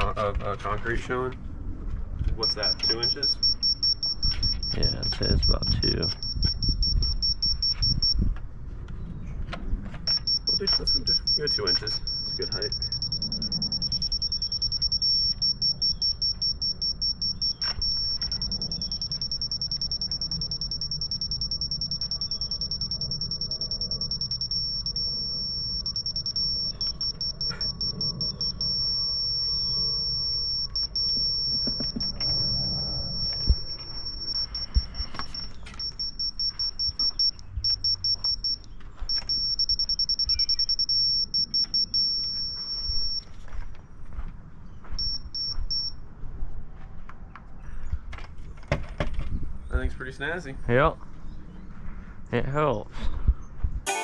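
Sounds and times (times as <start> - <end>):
high-pitched tone and beeping: 2.4 - 8.2, 10.1 - 43.2.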